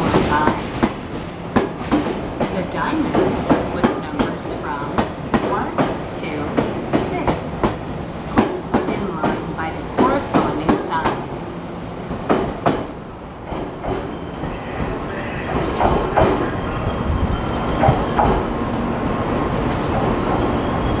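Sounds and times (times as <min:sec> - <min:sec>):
train running gear rumble: 0:00.0 - 0:21.0
train wheels clacking over joints: 0:12.2 - 0:16.6.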